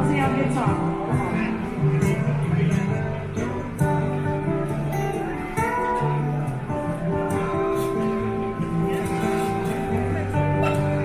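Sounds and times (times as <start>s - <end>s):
strummed acoustic guitar: 0.0s - 11.0s.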